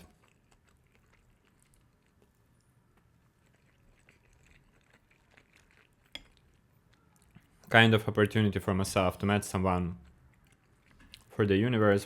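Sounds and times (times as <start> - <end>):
person chewing food: 0.0 - 7.7, 10.0 - 11.4.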